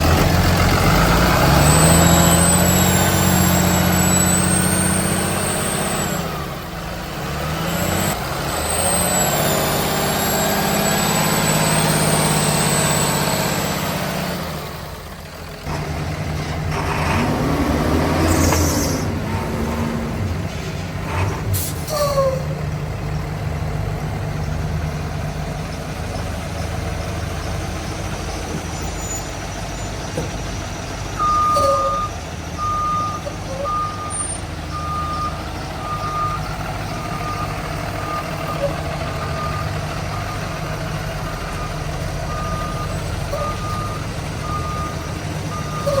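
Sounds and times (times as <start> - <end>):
diesel bus engine rumbling: 0.0 - 46.0
reversing alarm beeping: 31.2 - 46.0.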